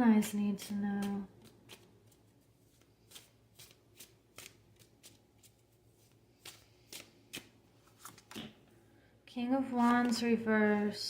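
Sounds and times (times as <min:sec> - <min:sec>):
cards being shuffled: 0:00.6 - 0:08.6.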